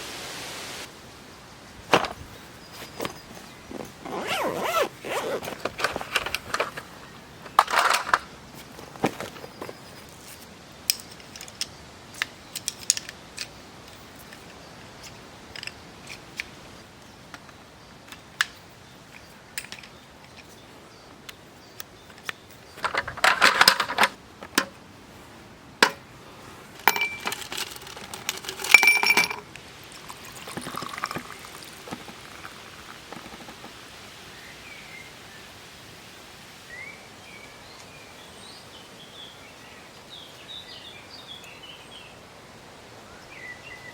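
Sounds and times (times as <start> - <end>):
birds chirping: 1.4 - 10.4
camp gear clicks and knocks: 1.9 - 24.8, 25.8 - 26.1, 26.8 - 33.8
metallic clinks: 26.8 - 29.5.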